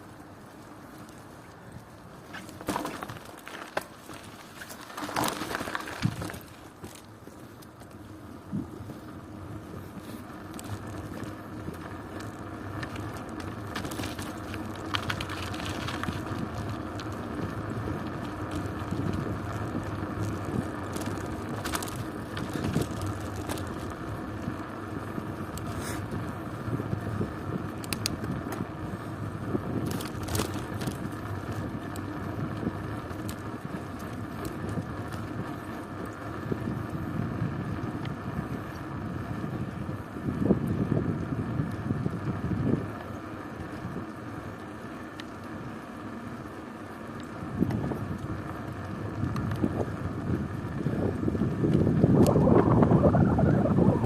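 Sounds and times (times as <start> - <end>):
bicycle tyre and road noise: 0.0 - 54.0
bike rattles and knocks: 2.2 - 9.0, 9.6 - 38.9.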